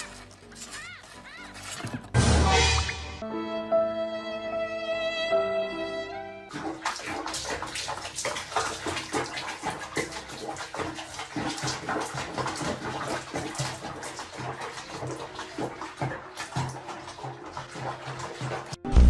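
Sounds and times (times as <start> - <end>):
water splashing: 6.5 - 19.0.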